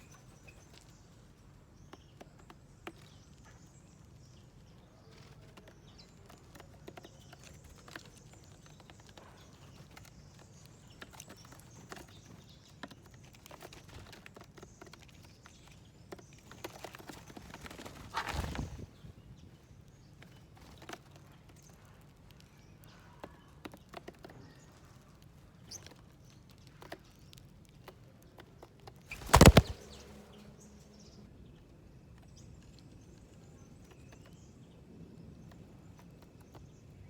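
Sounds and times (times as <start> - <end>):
beaks pecking at seeds: 0.0 - 18.5, 19.4 - 30.5
bird wingbeats: 16.4 - 18.9, 29.0 - 30.5
faint bird chirps: 29.1 - 31.3.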